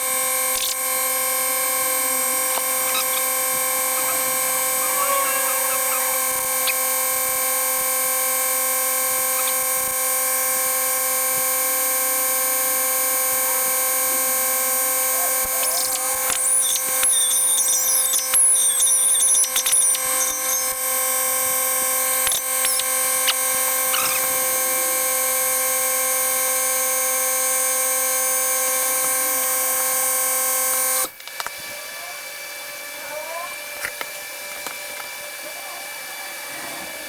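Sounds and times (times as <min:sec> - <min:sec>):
angle grinder whine: 0:00.0 - 0:32.9
grinder disc squealing on steel: 0:02.4 - 0:07.3, 0:09.1 - 0:09.9, 0:15.5 - 0:20.8, 0:22.2 - 0:24.6.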